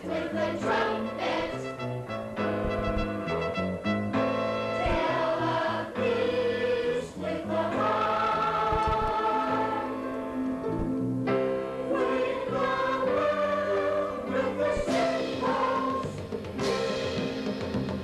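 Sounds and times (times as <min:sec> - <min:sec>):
youth choir singing: 0:00.0 - 0:01.9, 0:04.8 - 0:10.2, 0:11.8 - 0:17.4.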